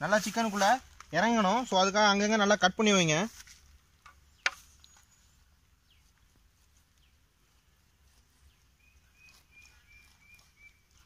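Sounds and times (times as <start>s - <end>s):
faint bird calls: 8.4s - 11.0s.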